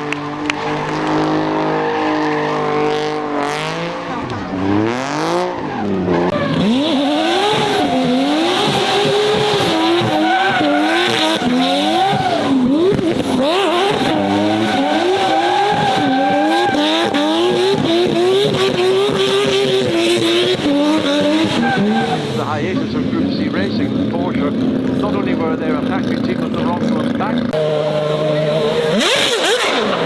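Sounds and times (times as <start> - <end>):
car engine revving: 0.0 - 30.0
tyres squealing: 4.1 - 22.9.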